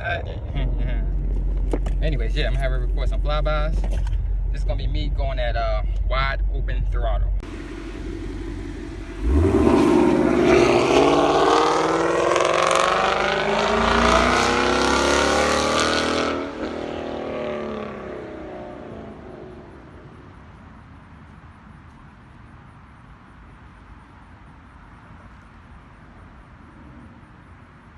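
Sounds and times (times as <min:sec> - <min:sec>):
car engine passing at full throttle: 0:07.4 - 0:20.3.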